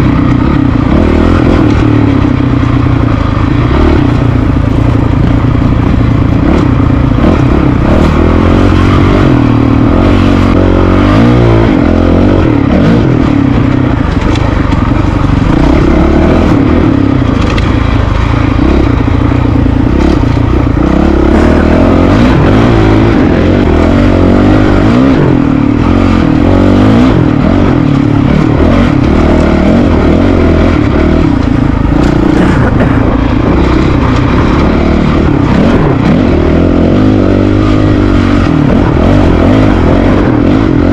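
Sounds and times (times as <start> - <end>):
motorbike engine revving: 0.0 - 40.9.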